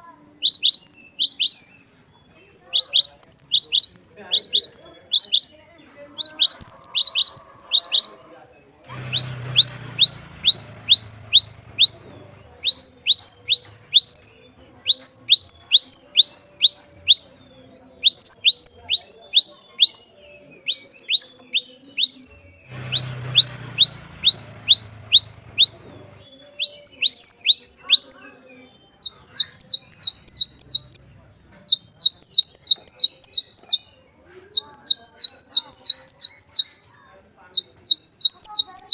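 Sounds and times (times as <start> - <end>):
faint low rumble: 8.8 - 12.8, 22.4 - 26.6
bird singing high notes: 9.0 - 12.0, 18.0 - 31.0.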